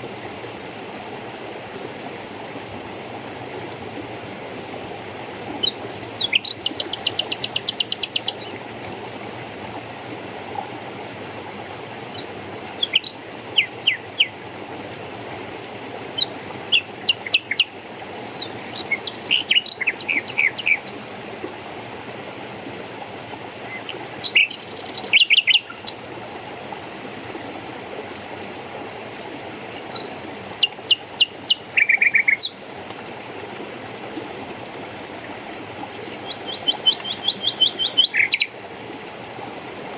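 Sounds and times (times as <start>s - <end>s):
stream water flowing: 0.0s - 39.9s
small birds chirping: 18.3s - 21.0s, 36.2s - 38.6s.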